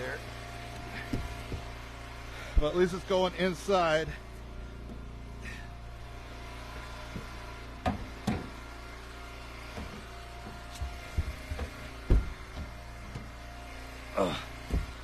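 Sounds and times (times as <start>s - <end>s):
log splitter engine running: 0.0s - 15.0s
wood pieces knocking and thudding: 9.7s - 13.3s, 14.6s - 15.0s.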